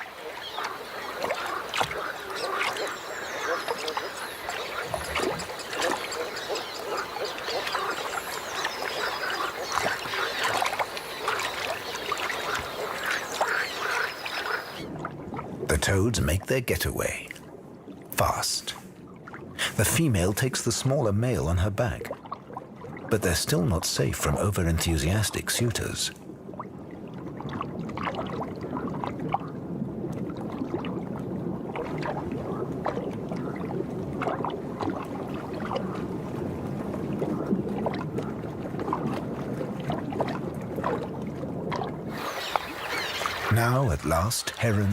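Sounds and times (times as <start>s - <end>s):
frogs quacking calls: 0.0s - 14.9s, 42.1s - 43.7s
water splashing and sloshing: 0.0s - 44.9s.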